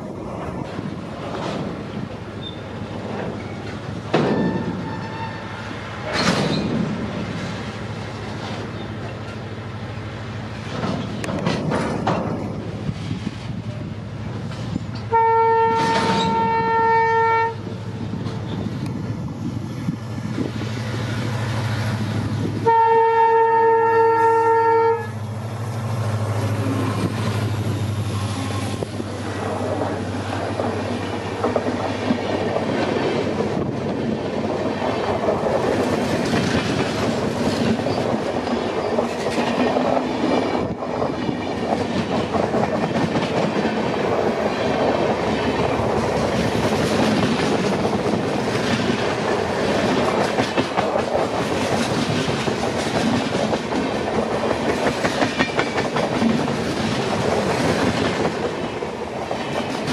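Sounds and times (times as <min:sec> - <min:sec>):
train wheels clattering over rail joints: 0:00.2 - 0:09.7, 0:10.4 - 0:16.8, 0:17.9 - 0:19.1, 0:26.7 - 0:59.9
locomotive horn blasts: 0:04.2 - 0:05.6, 0:15.1 - 0:17.7, 0:22.6 - 0:25.2.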